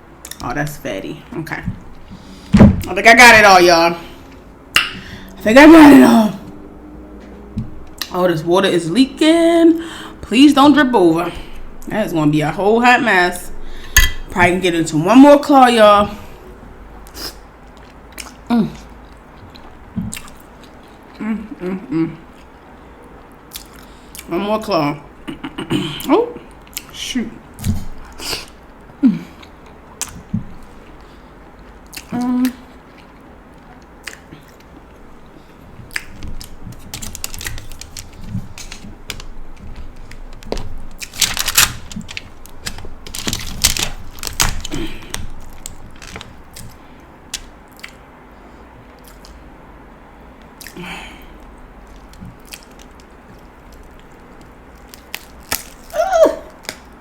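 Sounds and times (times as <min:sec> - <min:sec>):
chewing: 0:29.3 - 0:40.4
crab shell cracking: 0:35.9 - 0:48.0, 0:51.9 - 0:57.0.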